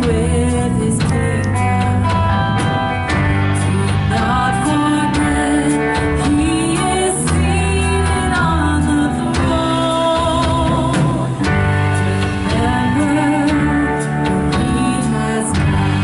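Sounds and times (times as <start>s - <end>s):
band playing: 0.0s - 16.0s
guitar: 0.0s - 16.0s
person singing: 0.0s - 16.0s.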